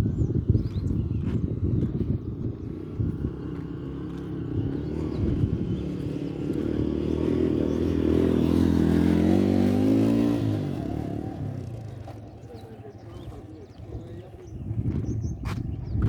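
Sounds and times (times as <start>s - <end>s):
vehicle engine passing by: 1.6s - 14.2s.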